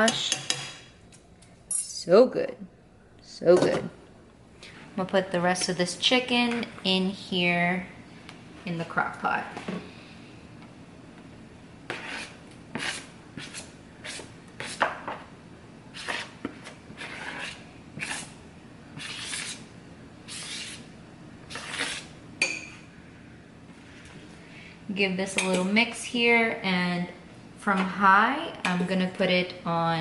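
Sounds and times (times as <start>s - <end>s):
utensil scraping a dish: 11.9s - 15.0s, 15.9s - 18.4s, 19.0s - 19.7s, 20.3s - 20.9s, 21.5s - 22.7s.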